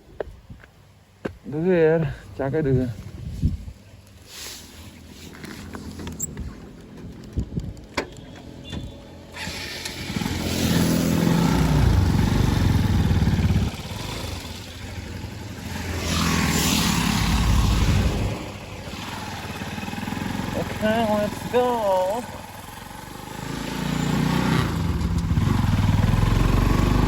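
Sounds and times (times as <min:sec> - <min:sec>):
motorcycle engine revving: 0:09.1 - 0:27.0.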